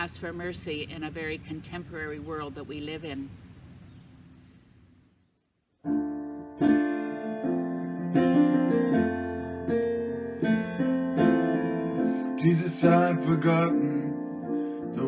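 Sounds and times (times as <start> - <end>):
piano playing sustained chords: 5.8 - 15.0.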